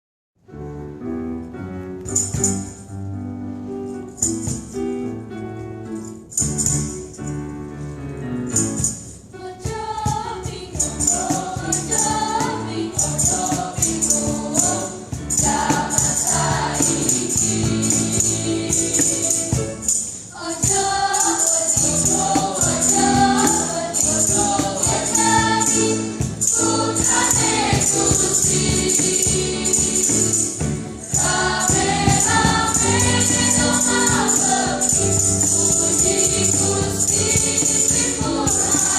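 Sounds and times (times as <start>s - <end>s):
musical accompaniment: 0.4s - 38.9s
shaken percussion: 2.0s - 38.9s
church choir singing in parts: 9.4s - 38.9s.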